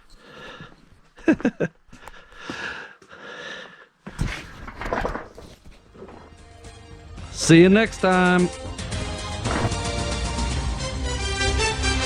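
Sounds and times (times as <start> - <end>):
man breathing out heavily: 1.9 - 4.6.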